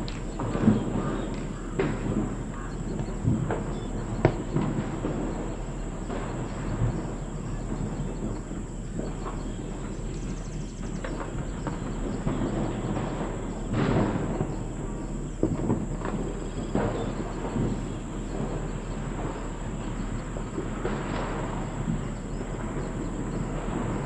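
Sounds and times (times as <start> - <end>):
faint high whine: 0.0 - 24.0
outdoor rumble: 0.0 - 24.0.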